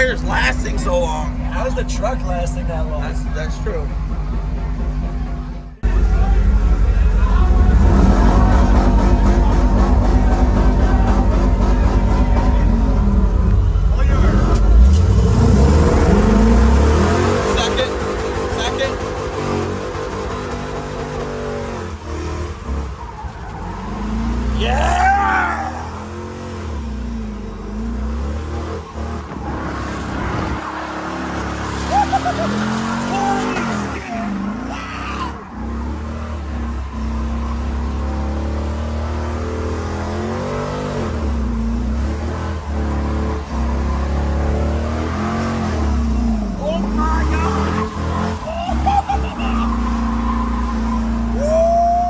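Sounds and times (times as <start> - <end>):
truck engine revving: 0.0 - 52.0
tyres squealing: 21.4 - 52.0
person yelling: 24.6 - 26.0, 33.0 - 35.4, 46.6 - 49.8, 51.4 - 52.0.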